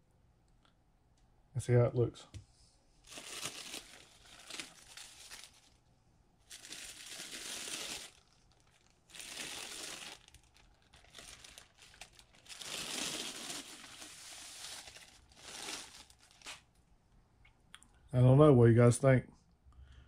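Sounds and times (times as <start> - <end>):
plastic bags crinkling: 3.0 - 5.8, 6.4 - 16.8.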